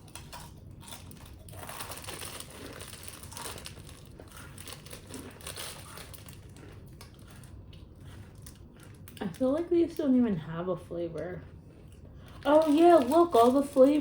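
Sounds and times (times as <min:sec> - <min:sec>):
plastic wrapper crinkling: 0:00.0 - 0:07.6, 0:12.2 - 0:14.0.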